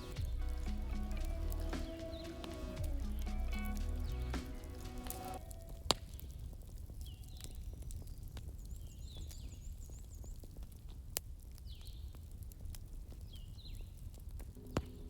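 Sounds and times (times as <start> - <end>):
low steady rumble: 0.0 - 1.8, 2.4 - 5.4
fireplace crackling: 0.0 - 15.0.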